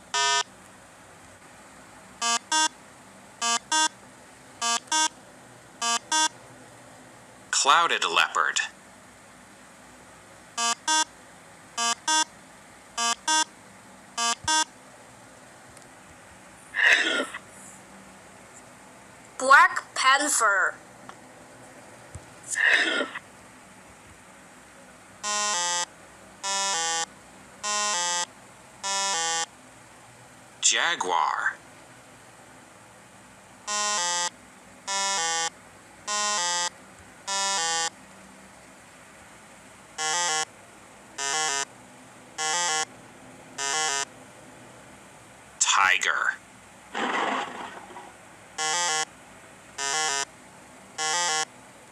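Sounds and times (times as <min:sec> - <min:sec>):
electronic two-tone buzz: 0:00.1 - 0:00.5, 0:02.2 - 0:02.8, 0:03.4 - 0:04.0, 0:04.6 - 0:05.2, 0:05.8 - 0:06.4, 0:10.6 - 0:11.1, 0:11.8 - 0:12.3, 0:13.0 - 0:13.5, 0:14.2 - 0:14.7, 0:25.2 - 0:29.5, 0:33.6 - 0:38.0, 0:40.0 - 0:40.5, 0:41.2 - 0:41.7, 0:42.4 - 0:42.9, 0:43.6 - 0:44.1, 0:48.6 - 0:49.1, 0:49.8 - 0:50.3, 0:51.0 - 0:51.5
high electronic beeps: 0:02.2 - 0:02.7, 0:03.4 - 0:03.9, 0:04.6 - 0:05.1, 0:05.8 - 0:06.3, 0:10.6 - 0:11.1, 0:11.8 - 0:12.3, 0:13.0 - 0:13.5, 0:14.2 - 0:14.7, 0:26.4 - 0:29.5, 0:37.3 - 0:37.9
rough burst of sound: 0:46.9 - 0:48.2.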